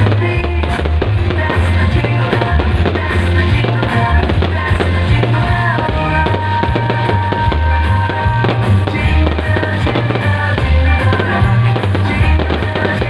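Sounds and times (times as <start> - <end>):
fireworks popping and crackling: 0.0 - 13.0
loud music with bass beat: 0.0 - 13.0.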